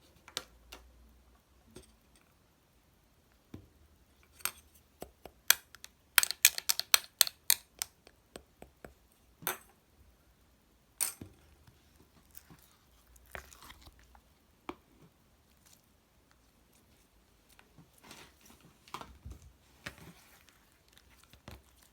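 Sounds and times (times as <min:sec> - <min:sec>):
slime squishing with clicks and pops: 0:05.0 - 0:08.8.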